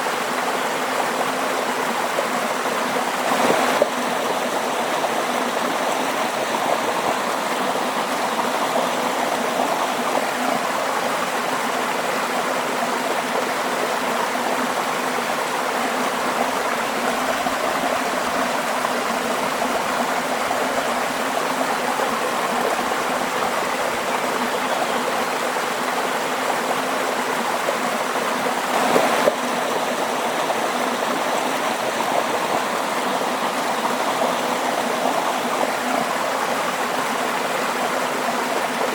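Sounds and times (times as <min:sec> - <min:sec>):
waterfall rushing: 0:27.8 - 0:38.9.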